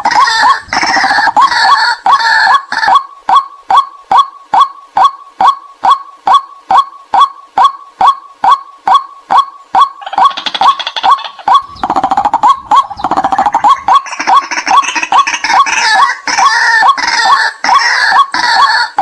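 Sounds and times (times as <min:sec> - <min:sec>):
sharp kwak bird calls: 0:00.0 - 0:19.0
harsh chattering bird chorus: 0:10.0 - 0:19.0.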